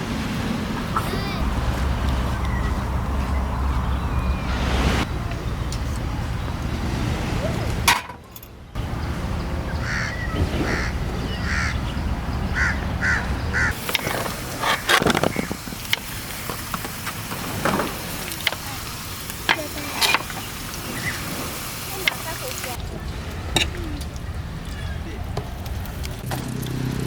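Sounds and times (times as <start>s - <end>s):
steady low rumble: 0.0s - 7.9s
bird calling: 0.7s - 5.0s, 8.9s - 25.7s.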